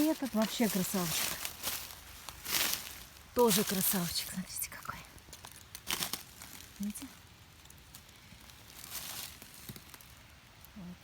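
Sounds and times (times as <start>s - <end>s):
dry leaf litter rustling and crackling: 0.0s - 11.0s.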